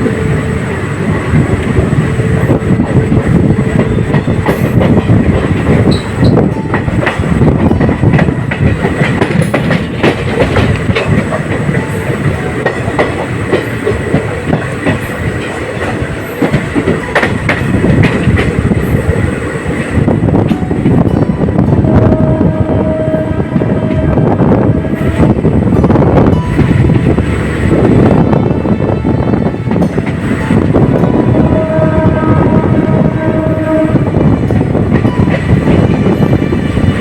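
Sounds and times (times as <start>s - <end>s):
train coaches rumbling: 0.0s - 37.0s
wheels clicking over rail joints: 1.4s - 21.2s.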